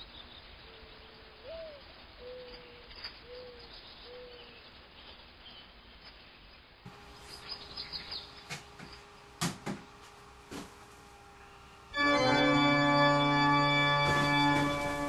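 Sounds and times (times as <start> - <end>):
faint bird-like chirping: 0.0 - 9.3
loud sustained organ chord: 6.9 - 15.0.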